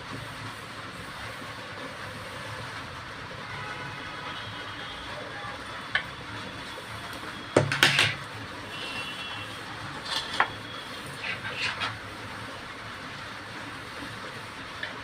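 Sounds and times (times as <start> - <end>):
steady background noise: 0.0 - 15.0
metal utensils clattering on dishes: 7.6 - 8.2, 10.0 - 10.6.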